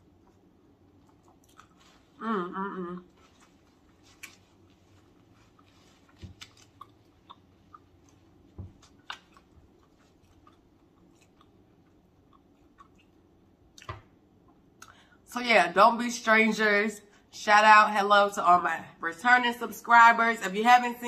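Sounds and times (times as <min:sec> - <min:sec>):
close-up chewing: 0:00.0 - 0:02.2, 0:03.0 - 0:13.9.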